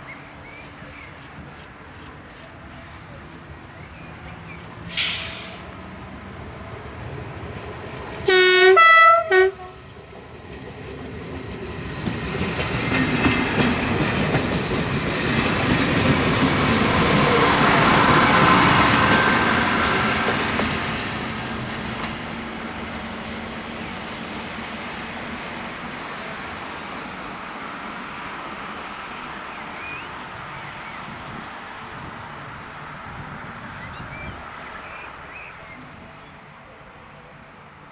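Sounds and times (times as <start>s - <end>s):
train passing: 0.0s - 37.9s
train horn blasts: 8.2s - 9.9s.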